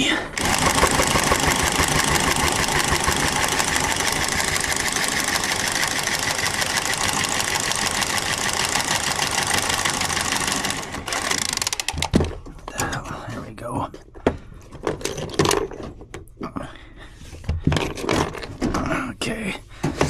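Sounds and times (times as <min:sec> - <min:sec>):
power tool cutting pipe: 0:00.4 - 0:11.8.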